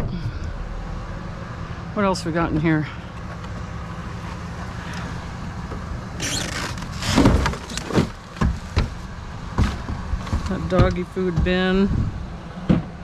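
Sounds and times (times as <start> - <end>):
vehicle engine rumble: 0.0 - 13.0
items clattering and knocking: 6.2 - 12.1.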